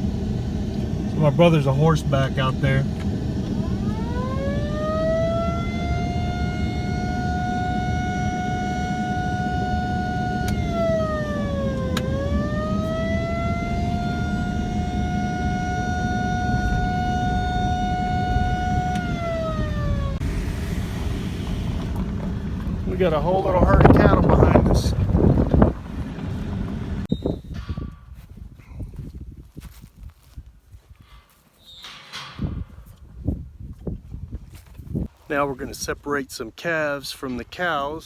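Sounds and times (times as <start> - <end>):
truck engine running: 0.0 - 27.1
siren wailing: 0.9 - 27.1.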